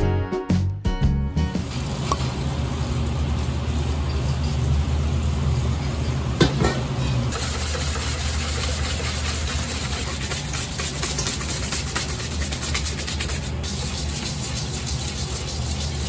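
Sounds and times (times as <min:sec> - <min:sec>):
kitchen ventilation hum: 0:01.5 - 0:16.0
whisk beating in metal bowl: 0:07.3 - 0:16.0.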